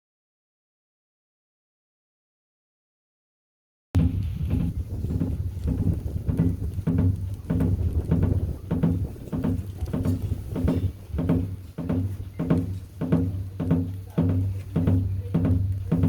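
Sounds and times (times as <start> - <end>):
hourglass drum steady beat: 4.0 - 16.0.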